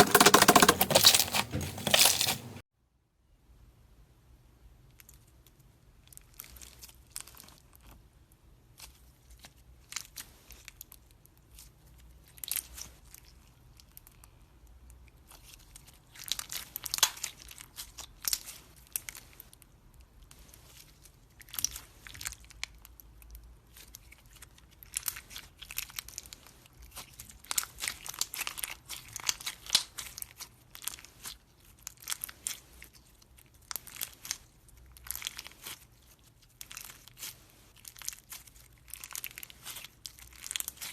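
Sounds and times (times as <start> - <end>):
slime crackling and crunching: 0.0 - 2.6.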